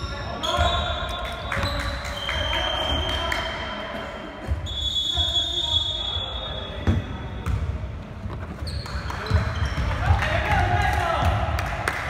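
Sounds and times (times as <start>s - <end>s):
basketball bouncing on court floor: 8.6s - 11.4s.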